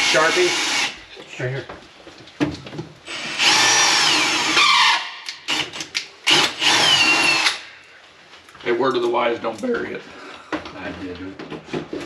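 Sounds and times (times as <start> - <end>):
power drill whining: 0.0 - 1.0, 3.1 - 7.6.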